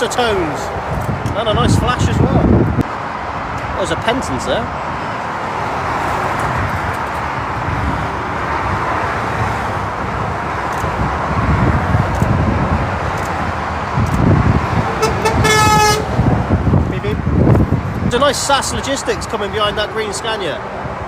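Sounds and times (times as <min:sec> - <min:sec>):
wind rumbling on microphone: 0:00.0 - 0:19.9
heavy traffic passing: 0:00.0 - 0:21.0
truck horn: 0:14.9 - 0:16.3.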